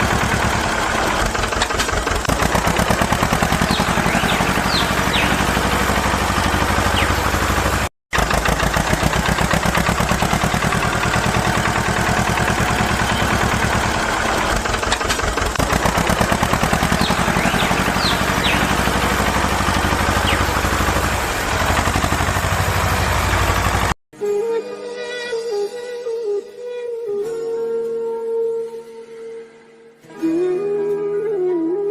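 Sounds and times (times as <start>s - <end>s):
small engine puttering: 0.0s - 24.0s.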